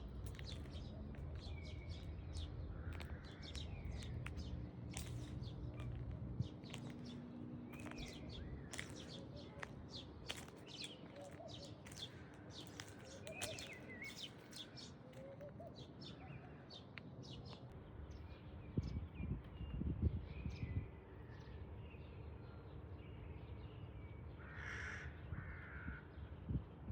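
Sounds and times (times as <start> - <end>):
small birds chirping: 0.0 - 20.8.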